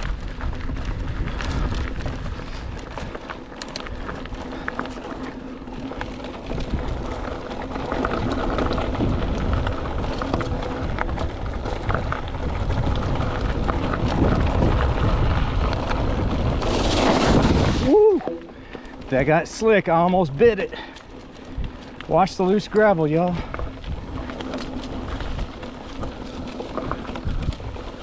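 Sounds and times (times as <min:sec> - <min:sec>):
bike rattling over stones: 0:00.0 - 0:28.0
bike tyres crunching on gravel: 0:00.0 - 0:28.0
wind rumbling on microphone: 0:00.0 - 0:28.0.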